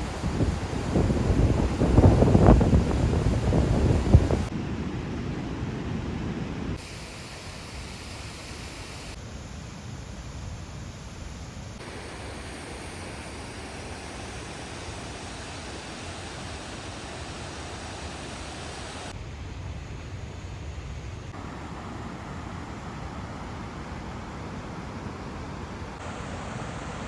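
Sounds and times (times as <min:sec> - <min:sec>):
waterfall roaring: 0:00.0 - 0:04.6, 0:11.8 - 0:19.1, 0:21.4 - 0:27.0.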